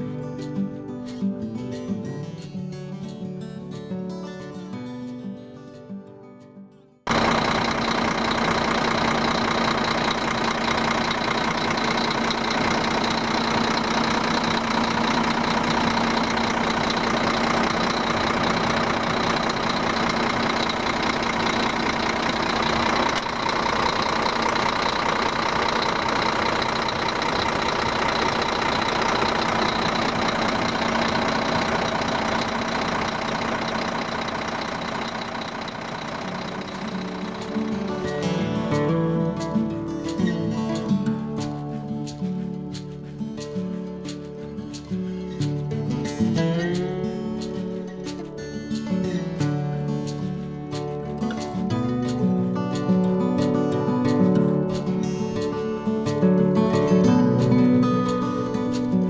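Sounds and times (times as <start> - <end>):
diesel truck engine idling: 7.1 - 39.4.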